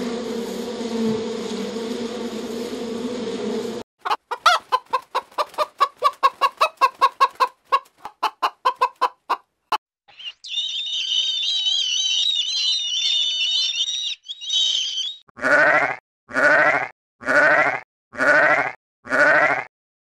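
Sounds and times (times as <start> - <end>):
gulls calling: 10.1 - 15.2.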